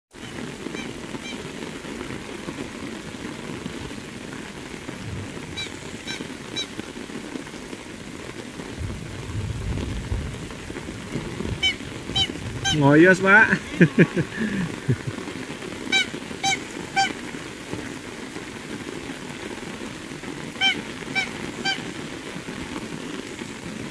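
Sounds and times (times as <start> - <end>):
heavy rain on pavement: 0.1 - 23.9
low rumble: 4.9 - 6.1
high chirps: 5.5 - 6.8.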